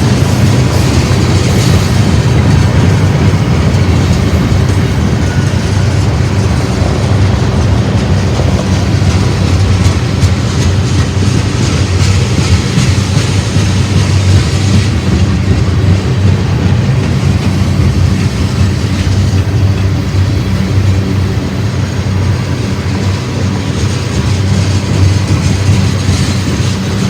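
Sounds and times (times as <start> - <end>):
freight train rumbling: 0.0 - 27.0
wheels clacking over rail joints: 0.0 - 27.0.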